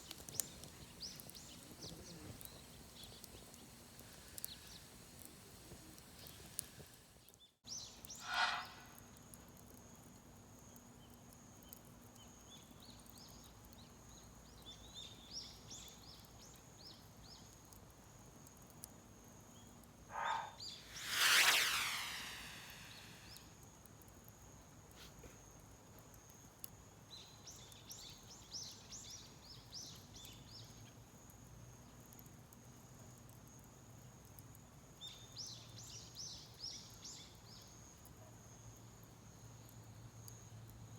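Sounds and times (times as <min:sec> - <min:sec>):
loud sweeping noise falling in pitch: 0:20.1 - 0:23.4
small birds chirping: 0:20.1 - 0:23.4.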